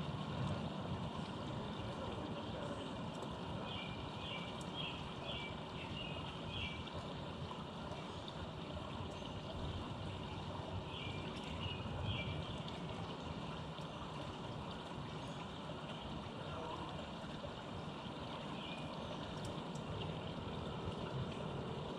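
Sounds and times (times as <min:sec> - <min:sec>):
songbird singing: 0:03.5 - 0:07.0, 0:09.1 - 0:12.9, 0:18.4 - 0:19.6.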